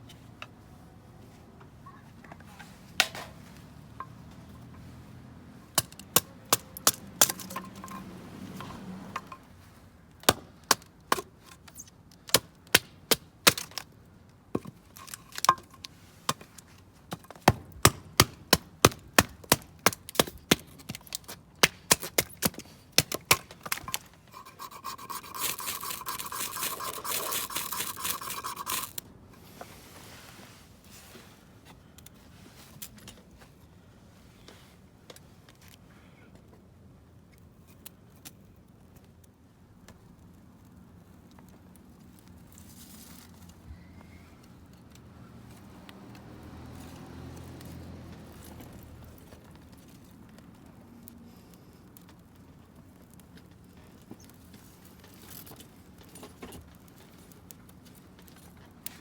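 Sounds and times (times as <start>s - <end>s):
firewood being chopped: 3.0s - 3.4s, 5.7s - 9.4s, 10.1s - 29.0s
scraping hiss: 24.2s - 31.2s.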